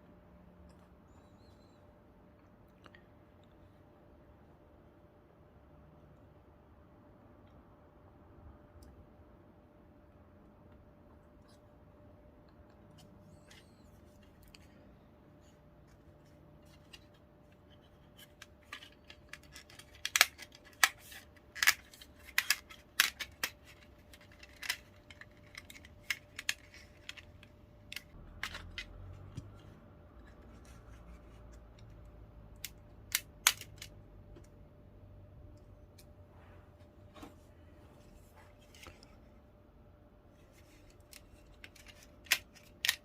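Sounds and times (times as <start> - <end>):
faint steady hum: 0.0 - 43.0
plastic parts clicking: 15.9 - 29.6, 32.6 - 34.5, 40.6 - 43.0.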